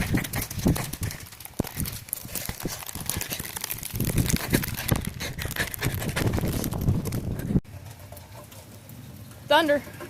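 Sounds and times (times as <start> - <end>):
rain pattering: 0.0 - 7.6.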